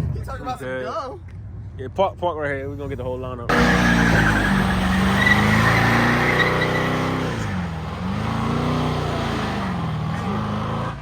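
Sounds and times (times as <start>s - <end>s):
tire squeal: 3.5s - 10.4s
car engine revving: 3.5s - 11.0s.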